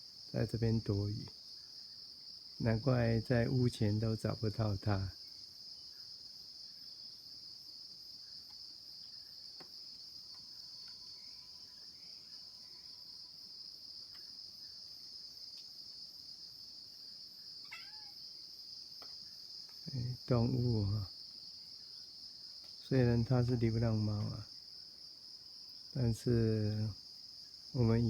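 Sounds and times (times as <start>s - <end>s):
insects shrilling: 17.4s - 21.2s.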